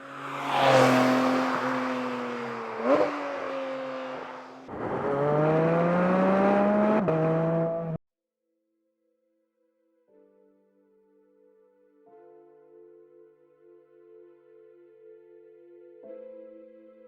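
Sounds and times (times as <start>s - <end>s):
sports car engine revving: 0.9s - 8.0s.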